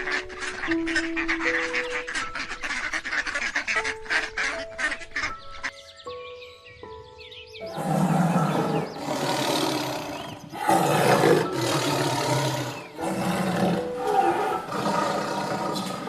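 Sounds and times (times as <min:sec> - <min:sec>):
large animal roaring: 0:07.7 - 0:16.0.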